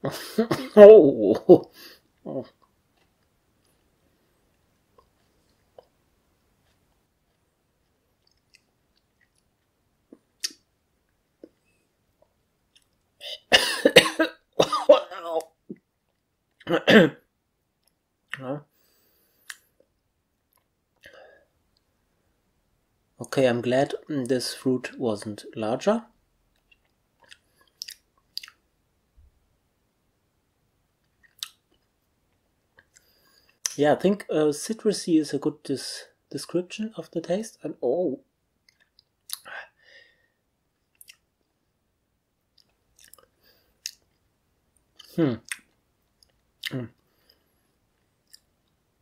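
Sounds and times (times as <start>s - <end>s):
faint chewing clicks: 2.1s - 13.1s, 17.8s - 18.4s, 19.4s - 22.0s, 26.5s - 28.6s, 31.0s - 33.8s, 38.6s - 39.5s, 40.8s - 41.6s, 42.5s - 48.9s
person chewing with wet mouth clicks: 8.2s - 10.6s, 26.5s - 28.6s, 31.1s - 31.9s, 38.6s - 39.5s, 40.9s - 41.2s, 42.6s - 44.2s.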